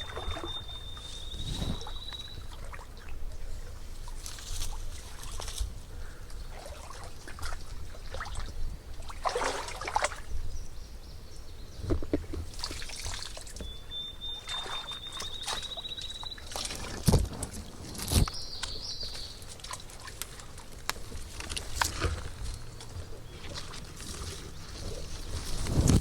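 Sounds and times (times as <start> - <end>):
high pulsed bird trill: 0.0 - 2.6, 13.6 - 16.5
rustling and crackling: 16.7 - 26.0.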